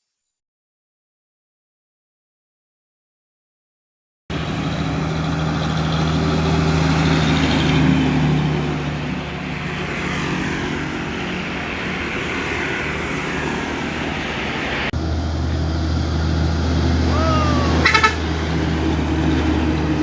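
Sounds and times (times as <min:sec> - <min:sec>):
diesel truck driving past: 0:04.3 - 0:20.0.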